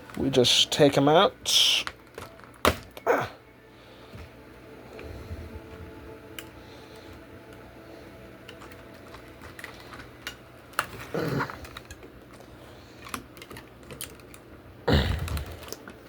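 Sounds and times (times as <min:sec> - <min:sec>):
plastic packaging rustling: 0:00.0 - 0:03.1, 0:08.4 - 0:16.0
plastic packaging clicks: 0:01.7 - 0:03.1, 0:08.4 - 0:16.0.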